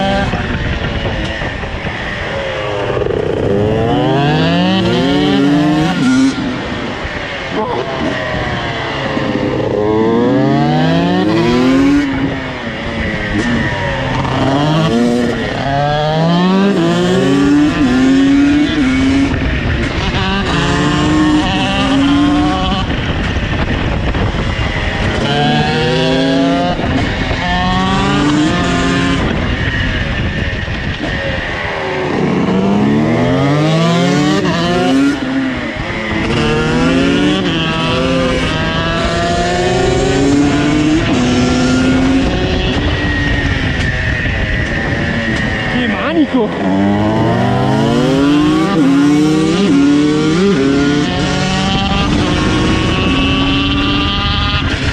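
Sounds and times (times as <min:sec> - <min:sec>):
motorcycle engines accelerating: 0:00.0 - 0:54.9.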